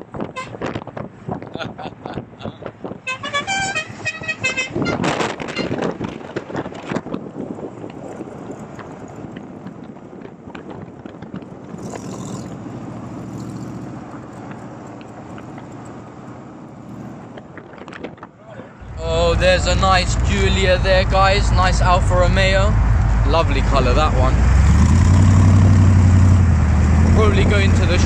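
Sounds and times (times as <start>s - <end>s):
car driving engine and road noise: 0.0s - 28.0s
vehicle horn short tones: 3.0s - 5.8s.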